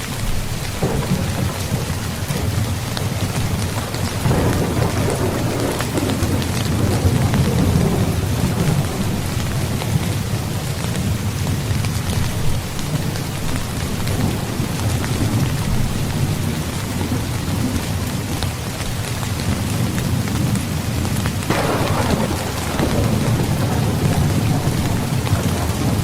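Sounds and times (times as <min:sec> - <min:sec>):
low rumble of thunder: 0:00.0 - 0:26.0
steady rainfall: 0:00.0 - 0:26.0
loud thunder burst: 0:00.8 - 0:10.1, 0:21.5 - 0:26.0.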